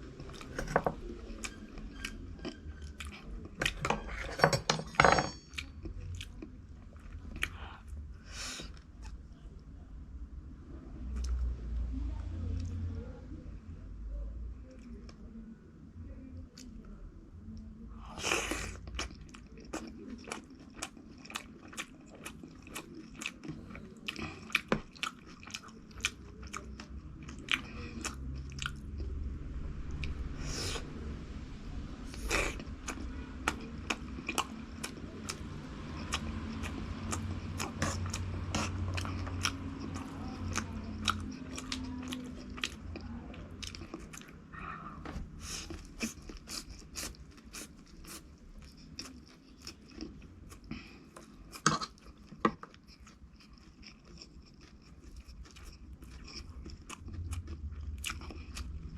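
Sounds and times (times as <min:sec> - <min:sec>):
crunchy food chewing: 0:18.1 - 0:29.1, 0:32.1 - 0:44.4, 0:45.4 - 0:58.9.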